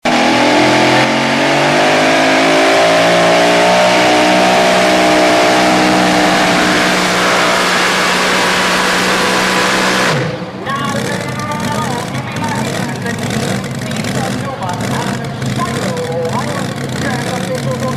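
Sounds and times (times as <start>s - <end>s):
truck engine revving high: 0.0s - 17.9s.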